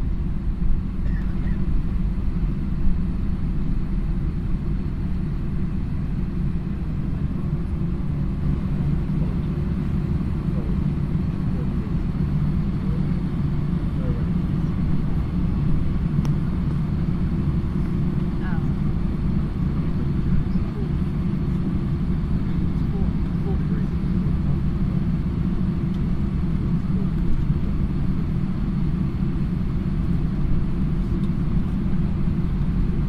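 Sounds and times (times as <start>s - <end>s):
airliner cabin rumble: 0.0s - 33.0s
faint voices: 8.5s - 14.9s, 22.3s - 24.6s.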